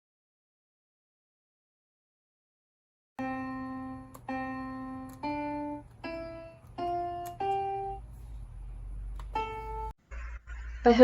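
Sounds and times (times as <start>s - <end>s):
electronic piano notes: 3.2s - 8.3s, 9.0s - 10.0s.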